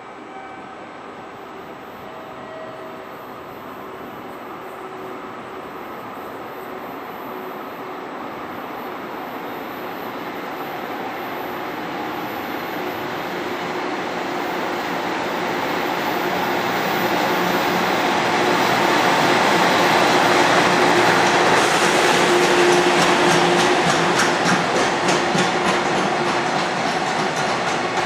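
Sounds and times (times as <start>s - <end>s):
train running noise: 0.0s - 28.0s
train wheel clicks: 21.6s - 28.0s.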